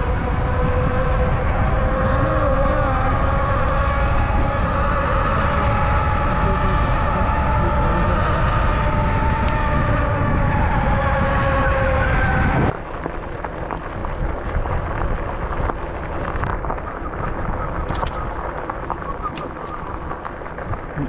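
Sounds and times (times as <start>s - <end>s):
wind rumble on microphone: 0.0s - 21.0s
rolling noise: 17.8s - 20.9s
electric bike motor whining: 17.9s - 20.1s.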